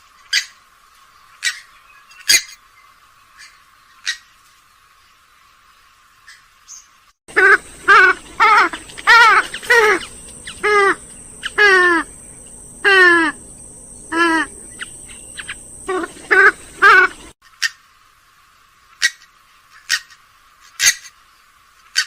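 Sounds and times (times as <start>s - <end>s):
bird wavering calls: 6.3s - 17.8s.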